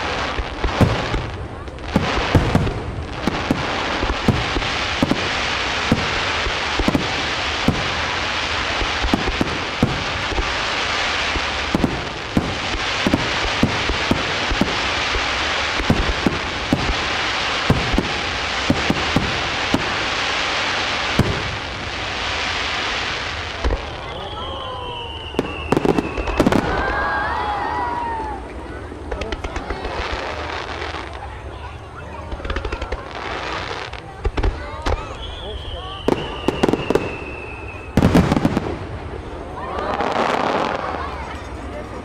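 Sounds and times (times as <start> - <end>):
fireworks bursting with sharp bangs: 0.0 - 42.0
steady hiss: 0.0 - 42.0.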